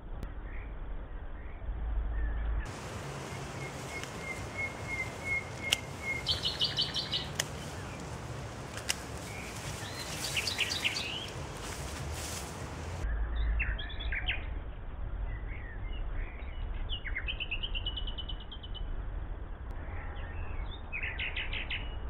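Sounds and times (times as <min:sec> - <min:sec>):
songbirds singing: 0:01.4 - 0:11.8, 0:13.0 - 0:18.9, 0:19.7 - 0:22.0
sharp clicks: 0:05.5 - 0:09.3.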